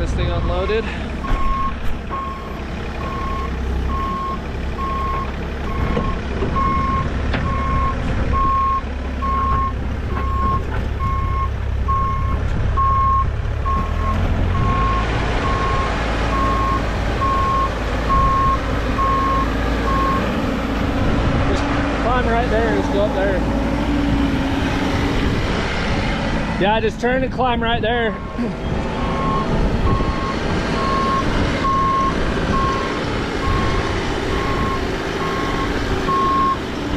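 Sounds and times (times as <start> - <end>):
diesel engine running: 0.0 - 36.9
backup alarm beeping: 1.2 - 20.2.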